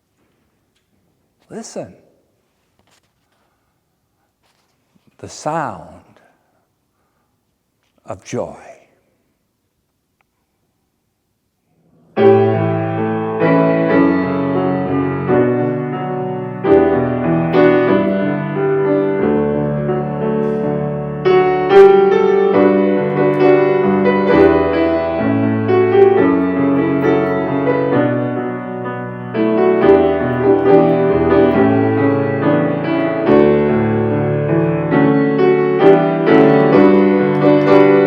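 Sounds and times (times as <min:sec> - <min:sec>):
slow piano chords: 0:12.0 - 0:38.0.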